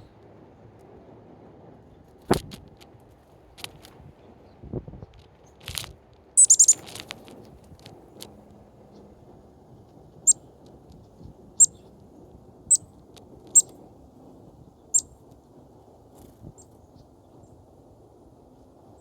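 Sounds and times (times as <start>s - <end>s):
low steady background noise: 0.0s - 19.0s
songbird chirping: 6.4s - 7.0s.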